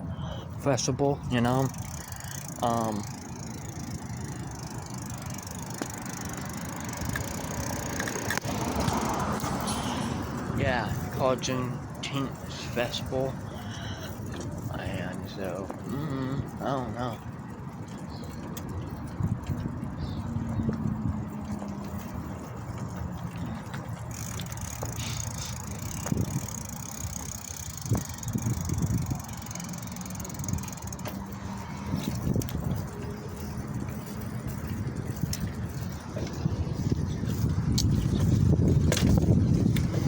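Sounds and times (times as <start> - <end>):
bicycle tyres rumbling: 0.0 - 40.0
wind on microphone: 18.1 - 22.5, 24.9 - 29.4, 31.4 - 40.0.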